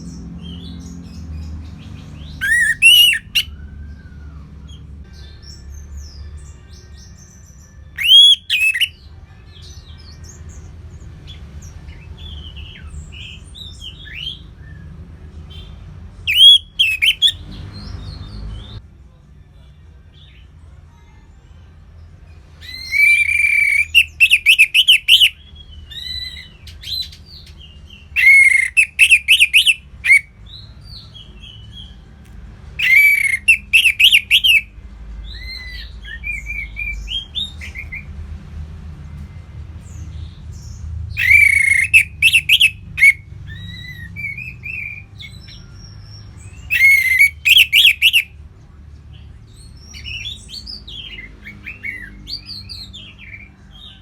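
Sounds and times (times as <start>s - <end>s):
soft bird twitters: 2.4s - 4.8s, 8.0s - 8.9s, 28.2s - 30.2s, 32.8s - 34.6s, 41.2s - 45.4s, 46.0s - 48.3s.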